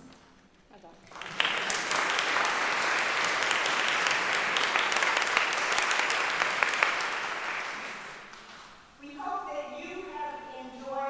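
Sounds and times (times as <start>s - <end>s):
audience applauding: 1.0s - 8.4s.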